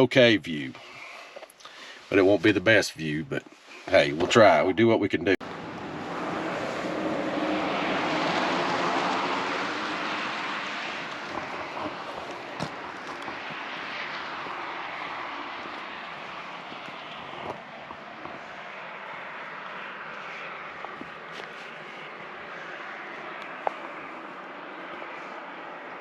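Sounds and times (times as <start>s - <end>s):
tyre and wind rush: 5.4s - 24.3s
pickup truck engine: 5.4s - 26.0s.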